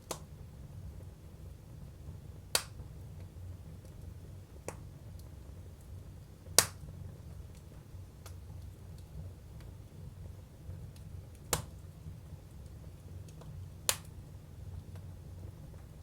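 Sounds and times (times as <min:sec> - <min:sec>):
low rumble of wood stove: 0:00.0 - 0:16.0
firewood cracking and popping: 0:06.5 - 0:06.9, 0:10.9 - 0:11.8.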